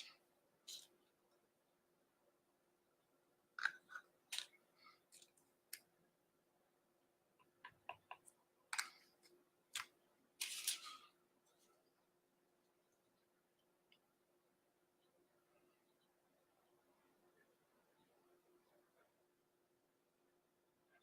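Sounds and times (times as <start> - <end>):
scratchy scrapes on painting: 0.0 - 1.0, 10.4 - 11.1
faint steady hum: 0.0 - 21.0.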